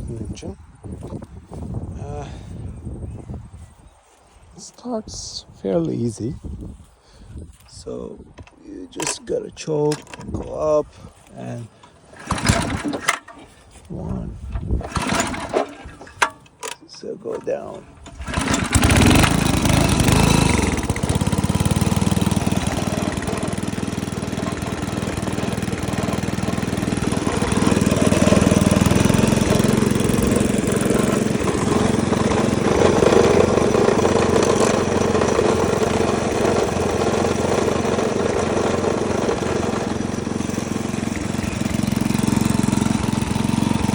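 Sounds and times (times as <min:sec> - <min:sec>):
small engine running steadily: 0:10.0 - 0:43.9.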